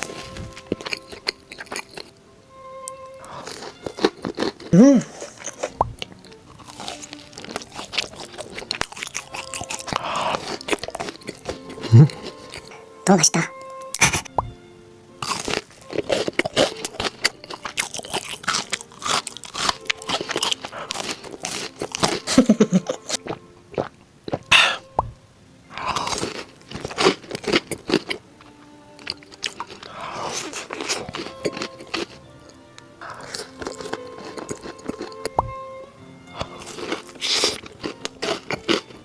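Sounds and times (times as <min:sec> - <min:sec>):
wet chewing sounds: 0:00.0 - 0:02.2, 0:03.2 - 0:12.9, 0:13.8 - 0:14.6, 0:15.2 - 0:25.1, 0:25.8 - 0:32.2, 0:33.0 - 0:35.4, 0:36.4 - 0:39.0
soft background music: 0:00.0 - 0:39.0
crisp crunching bites: 0:06.6 - 0:12.4, 0:15.2 - 0:22.5, 0:36.4 - 0:38.8.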